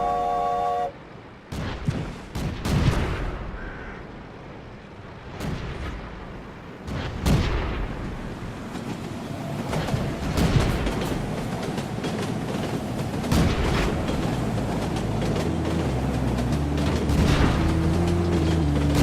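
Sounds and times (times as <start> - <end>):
low rumble: 13.3 - 19.0.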